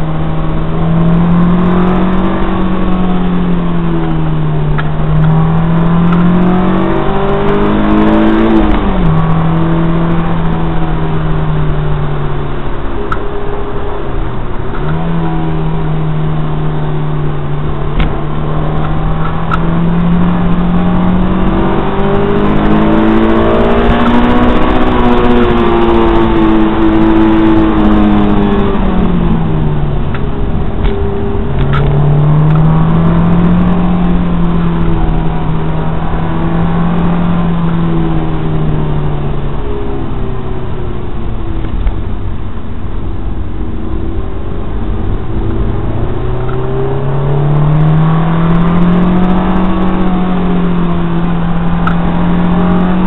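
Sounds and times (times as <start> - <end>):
car engine revving from inside: 0.0 - 42.1, 43.6 - 53.0.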